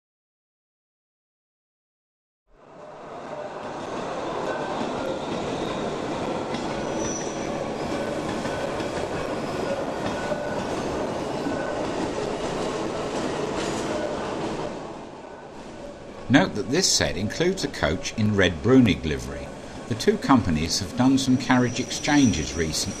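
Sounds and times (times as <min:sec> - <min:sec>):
train wheels rumbling on rail: 0:02.8 - 0:15.0, 0:15.6 - 0:23.0
high wheel squeals: 0:04.3 - 0:12.8, 0:21.0 - 0:23.0.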